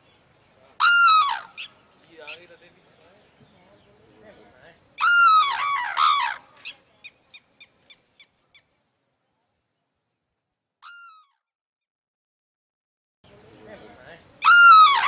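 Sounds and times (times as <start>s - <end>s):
bird calling: 0.0s - 8.7s, 13.3s - 15.0s.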